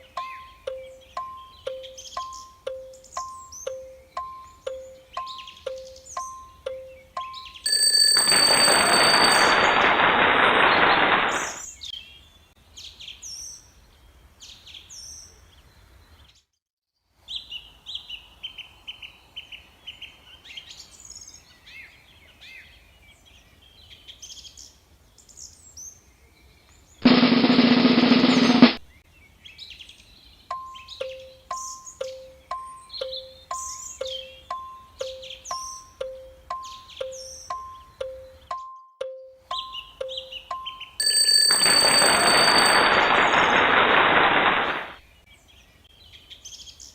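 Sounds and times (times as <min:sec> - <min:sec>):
bird chirps and calls: 0:00.0 - 0:07.7, 0:29.2 - 0:41.0
loud noisy burst: 0:08.7 - 0:11.6, 0:27.0 - 0:28.8, 0:42.0 - 0:45.0
repeating two-note tone: 0:30.6 - 0:41.3.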